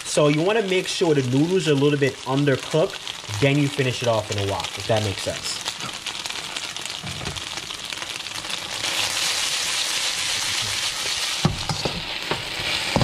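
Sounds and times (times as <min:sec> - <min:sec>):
onions sizzling in hot oil: 0:00.0 - 0:13.0
metal spatula stirring in wok: 0:10.3 - 0:13.0.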